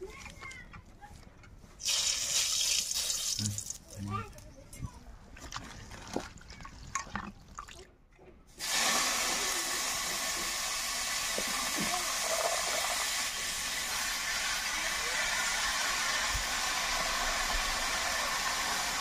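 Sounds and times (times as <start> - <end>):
greens sizzling in hot oil: 8.6 - 19.0.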